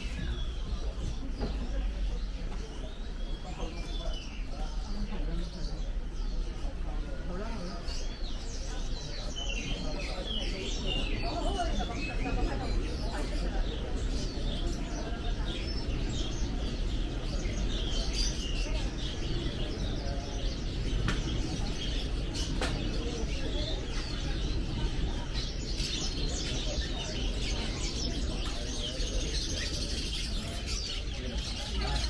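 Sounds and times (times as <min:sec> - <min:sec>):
crowd murmur: 0:00.0 - 0:32.0
songbirds chirping: 0:00.0 - 0:32.0.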